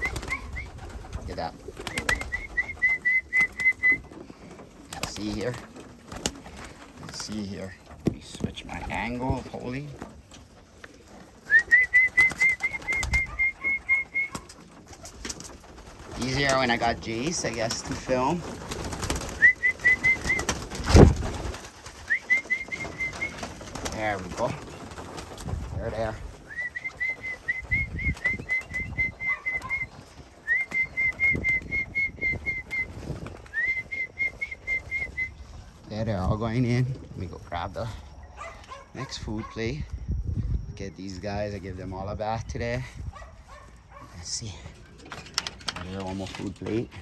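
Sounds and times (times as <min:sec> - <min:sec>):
high whistled notes: 0:11.4 - 0:14.4, 0:26.5 - 0:35.4.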